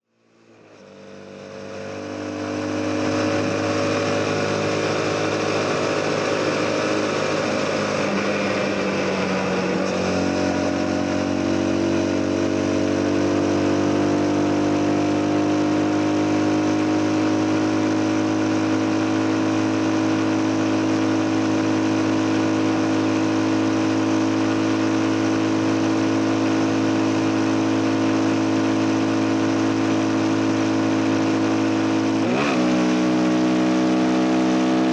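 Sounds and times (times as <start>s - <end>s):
motorcycle engine running: 0.3s - 34.9s
wind and road rush: 0.4s - 16.9s.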